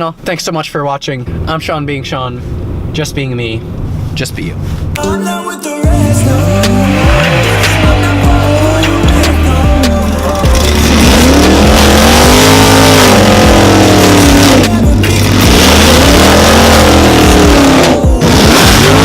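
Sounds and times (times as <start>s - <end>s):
steady low drone: 5.8s - 19.0s
car engine revving: 6.1s - 19.0s.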